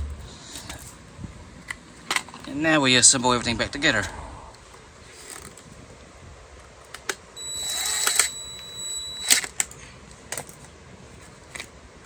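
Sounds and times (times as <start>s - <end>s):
steady high whine: 0.0s - 1.7s, 7.3s - 9.5s.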